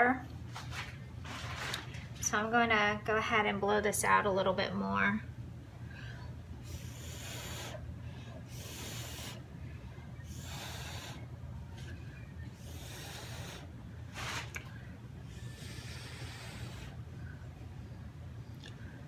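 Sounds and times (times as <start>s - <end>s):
steady low hum: 0.0s - 19.0s
hissing puffs of air: 6.6s - 7.9s, 8.5s - 9.5s, 10.2s - 11.3s, 12.6s - 14.6s, 15.3s - 17.0s.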